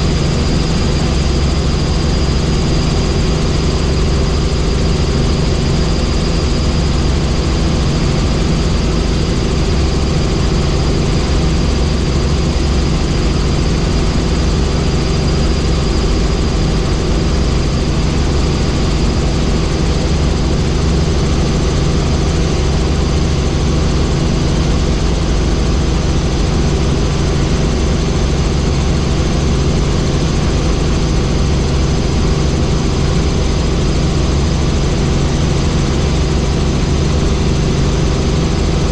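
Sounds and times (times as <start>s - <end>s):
helicopter rotor and engine drone: 0.0s - 38.9s.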